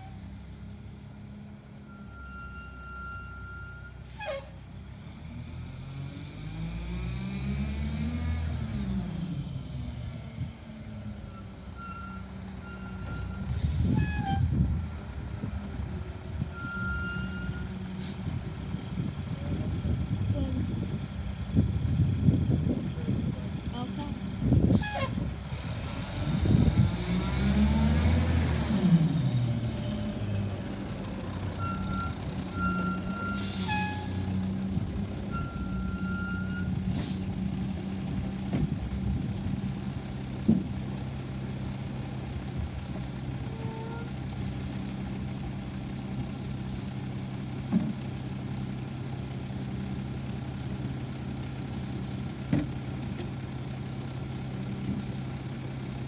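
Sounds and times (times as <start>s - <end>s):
garbage truck engine idling: 44.1s - 56.0s.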